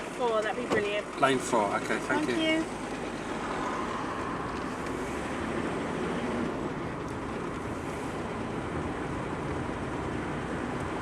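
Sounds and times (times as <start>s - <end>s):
car engine rumble: 0.0s - 11.0s.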